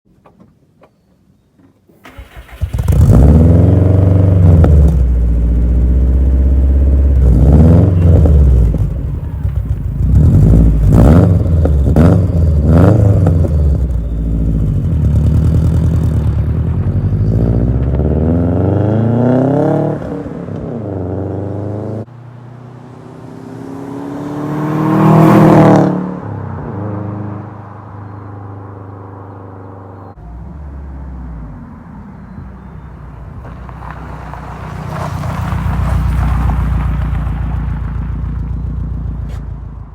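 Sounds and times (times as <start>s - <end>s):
car engine revving: 2.1s - 27.5s.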